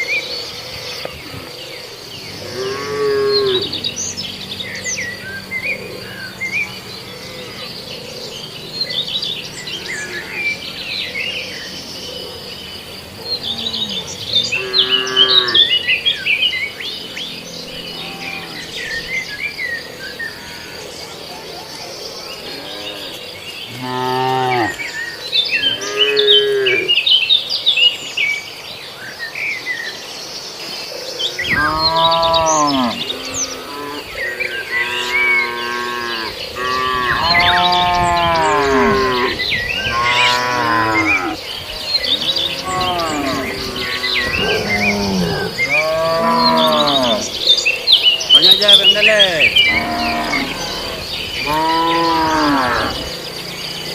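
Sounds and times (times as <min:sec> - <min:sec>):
birds chirping: 0:00.0 - 0:53.9
cattle mooing: 0:02.4 - 0:05.5, 0:13.2 - 0:15.8, 0:17.7 - 0:19.1, 0:22.4 - 0:24.9, 0:25.6 - 0:27.0, 0:31.5 - 0:47.4, 0:48.4 - 0:53.2
insect buzz: 0:31.4 - 0:48.4.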